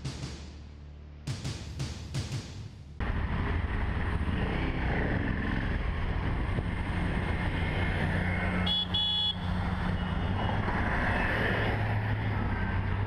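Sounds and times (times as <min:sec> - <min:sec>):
road and wind noise: 0:00.0 - 0:13.0
engine hum: 0:02.8 - 0:13.0.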